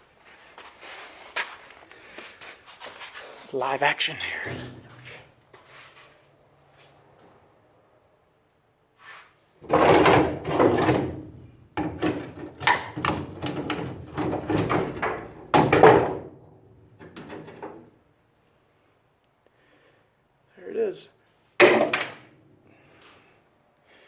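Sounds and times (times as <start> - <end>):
rusted bolt scraping and knocking: 9.6 - 16.2.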